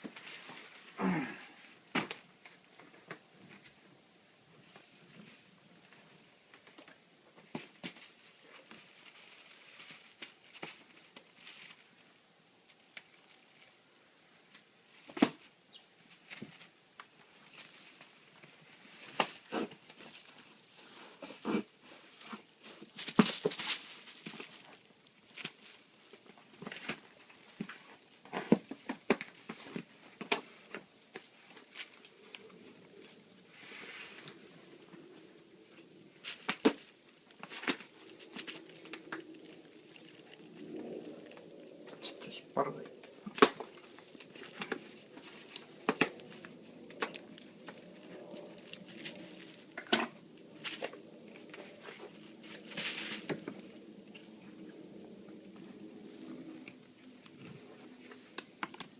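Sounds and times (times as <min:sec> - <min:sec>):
soft brushing hiss: 0:00.0 - 0:58.9
packing material crinkling: 0:36.2 - 0:41.9, 0:43.0 - 0:54.4.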